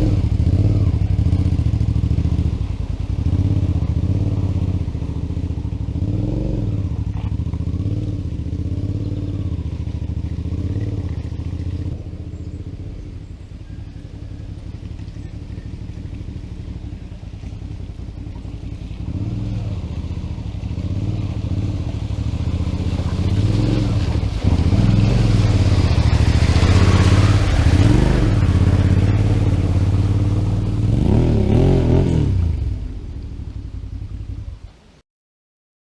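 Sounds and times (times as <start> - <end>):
motorcycle engine revving: 0.0 - 33.3.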